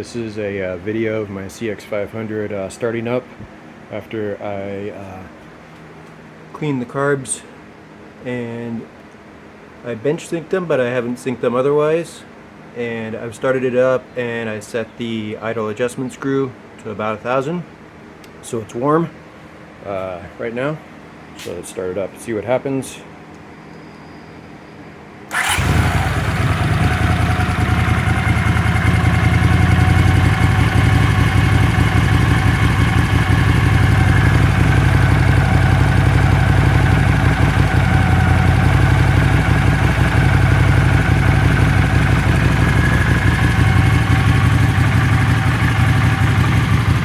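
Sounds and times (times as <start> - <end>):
motorcycle engine idling: 25.3 - 47.0.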